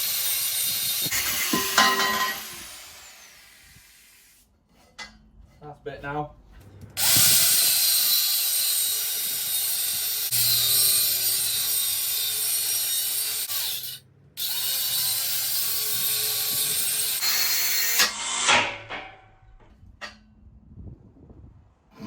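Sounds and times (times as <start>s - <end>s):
angle grinder on steel: 0.0s - 4.2s, 7.0s - 19.4s.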